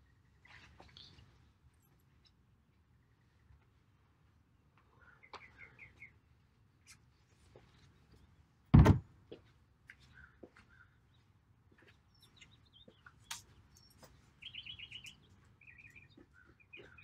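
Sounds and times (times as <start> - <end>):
bird chirping: 4.8 - 6.2, 10.0 - 17.0
loud thump: 8.8 - 9.0.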